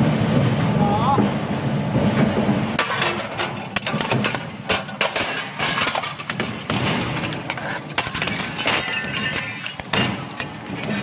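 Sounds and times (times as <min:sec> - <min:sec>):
crusher cracks and crashes: 0:02.8 - 0:11.0.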